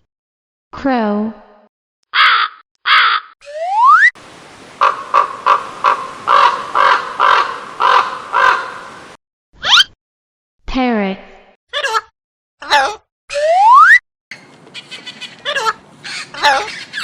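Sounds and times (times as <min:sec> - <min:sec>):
crow cawing: 0:02.1 - 0:03.3, 0:04.8 - 0:09.2
steady hiss: 0:04.2 - 0:09.2.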